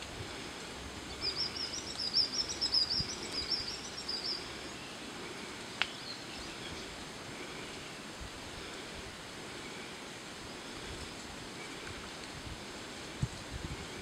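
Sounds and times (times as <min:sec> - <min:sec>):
outdoor hiss: 0:00.0 - 0:14.0
small bird singing: 0:01.1 - 0:07.0.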